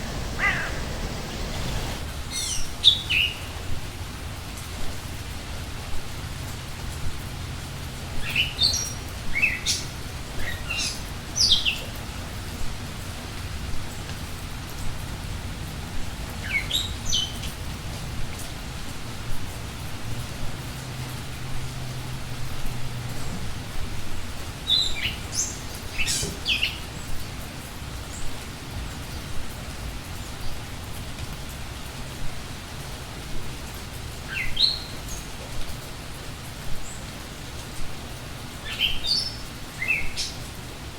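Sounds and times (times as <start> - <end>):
bird calls sweeping down: 0.0 - 2.0
forest ambience hiss: 0.0 - 4.6, 23.5 - 40.9
rain-like noise: 0.0 - 40.9.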